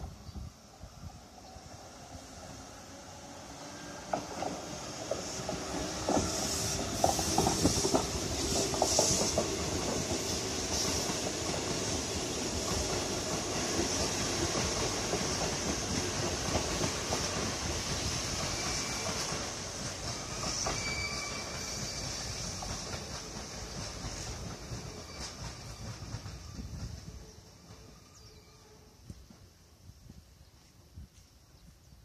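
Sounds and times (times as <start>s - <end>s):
high hiss: 0.6s - 26.7s
train wheels clicking over joints: 4.0s - 27.9s.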